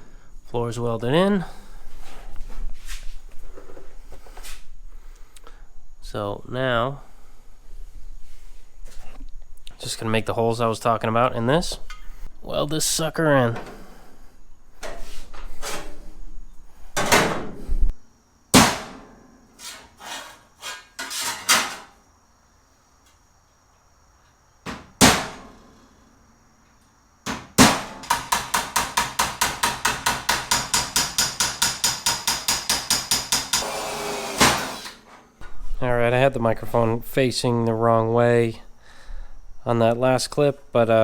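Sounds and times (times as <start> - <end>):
metal tool striking sheet steel: 27.6 - 33.7.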